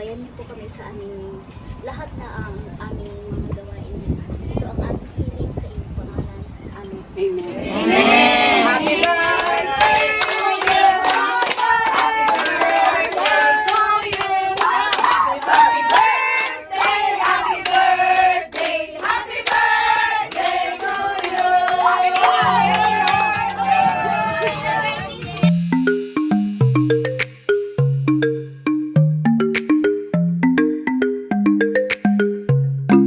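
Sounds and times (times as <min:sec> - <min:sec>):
group singing together: 0:07.5 - 0:25.6
hands clapping in rhythm: 0:07.8 - 0:26.0, 0:27.2 - 0:27.4, 0:29.6 - 0:29.8, 0:31.9 - 0:32.2.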